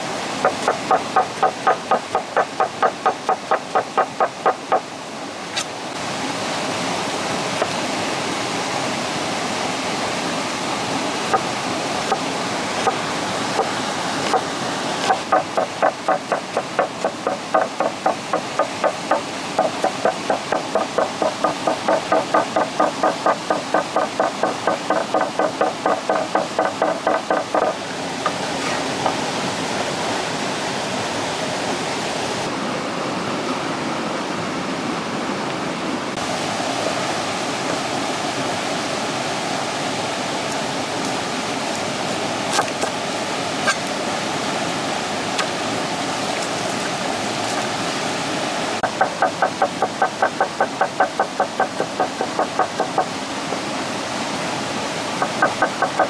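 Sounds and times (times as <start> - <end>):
rushing water: 0.0 - 56.0
rapid even knocking: 15.1 - 27.9.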